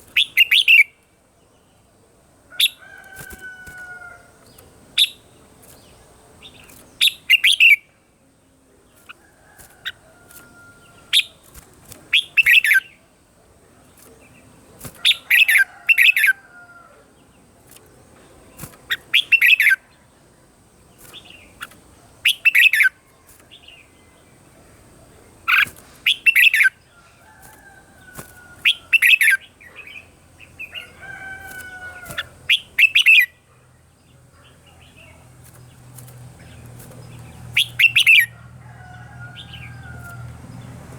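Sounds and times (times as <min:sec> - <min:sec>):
bird singing chirpy phrases: 0:00.0 - 0:02.8, 0:04.4 - 0:09.2, 0:17.2 - 0:26.9, 0:32.1 - 0:38.3.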